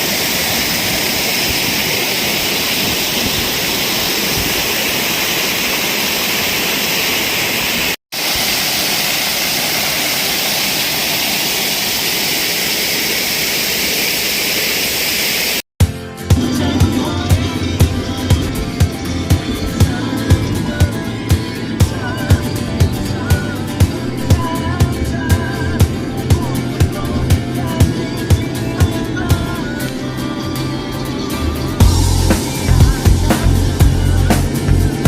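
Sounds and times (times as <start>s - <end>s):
waterfall rushing: 0.0s - 15.6s, 25.5s - 30.2s, 31.0s - 35.0s.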